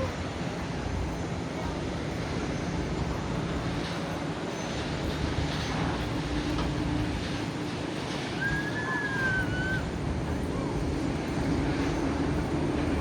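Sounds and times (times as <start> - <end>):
jet engines running: 0.0 - 13.0
high whistling tone: 8.4 - 9.9.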